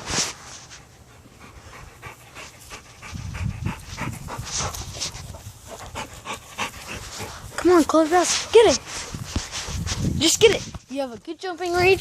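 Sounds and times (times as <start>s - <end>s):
dog panting: 0.7s - 10.1s.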